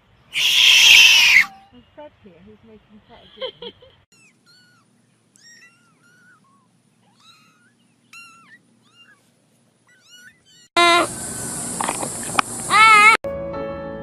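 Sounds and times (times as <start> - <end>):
kitten mewing: 0.4 - 1.6, 5.4 - 11.1.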